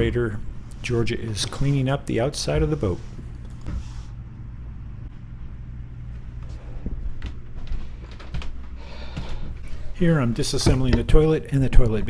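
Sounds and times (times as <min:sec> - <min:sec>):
low mechanical hum: 0:00.0 - 0:12.0
light clicks and knocks: 0:09.6 - 0:12.0.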